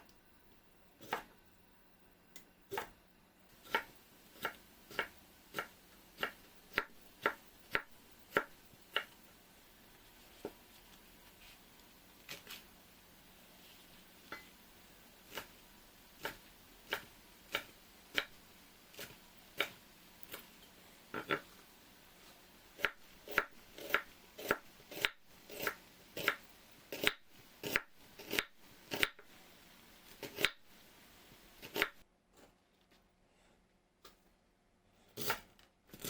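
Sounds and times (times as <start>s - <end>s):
knife chopping on cutting board: 3.6s - 9.2s, 22.8s - 29.3s, 30.2s - 30.6s.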